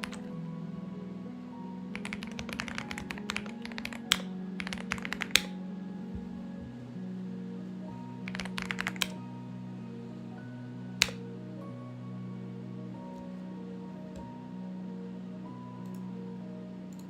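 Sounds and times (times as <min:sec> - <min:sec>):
mechanical keyboard typing: 0:00.0 - 0:00.3, 0:01.9 - 0:05.5, 0:08.3 - 0:09.2.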